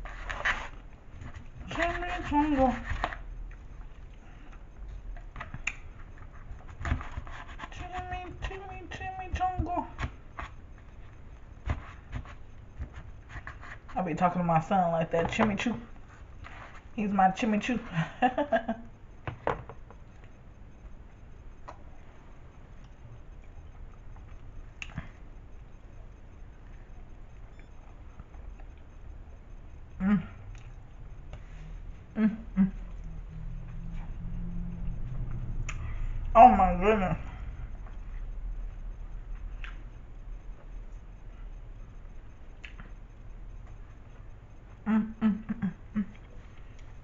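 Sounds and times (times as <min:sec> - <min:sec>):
person chewing food: 0:03.0 - 0:07.7, 0:19.8 - 0:36.2.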